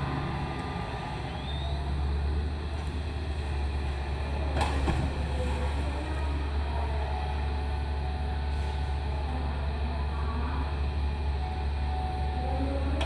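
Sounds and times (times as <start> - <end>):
excavator diesel engine drone: 0.0 - 13.0.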